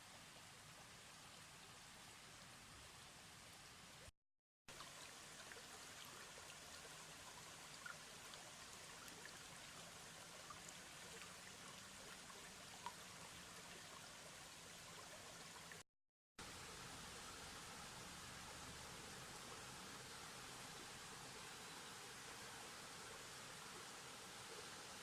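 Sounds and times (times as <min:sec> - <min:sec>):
small ticks: 0:10.5 - 0:13.1.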